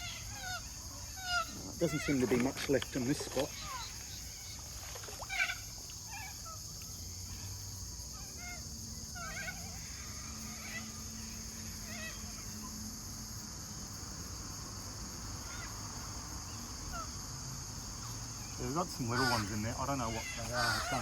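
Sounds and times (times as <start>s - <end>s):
high-pitched insect drone: 0.0s - 21.0s
birds chirping: 17.9s - 21.0s.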